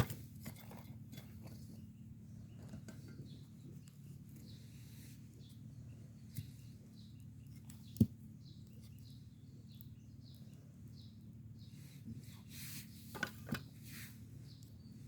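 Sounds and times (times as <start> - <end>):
low steady rumble: 0.0 - 15.0
small bird chirping: 0.0 - 15.0.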